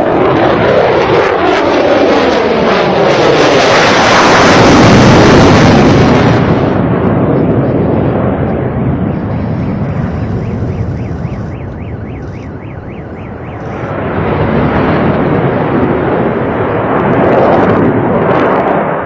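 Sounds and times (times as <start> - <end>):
jet aircraft roar: 0.0 - 19.0
rapid chirping tone: 9.3 - 14.0.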